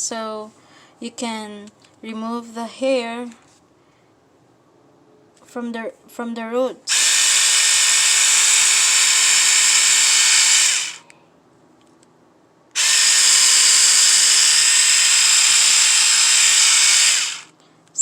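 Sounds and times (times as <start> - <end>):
epilator motor whining: 6.9 - 11.0, 12.8 - 17.5.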